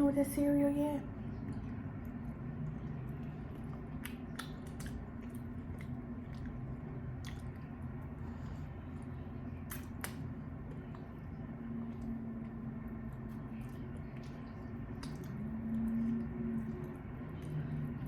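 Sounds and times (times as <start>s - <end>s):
low hum: 0.0s - 18.0s
wet squishy chewing: 1.1s - 18.0s
sharp mouth clicks: 3.6s - 6.5s, 9.7s - 10.3s.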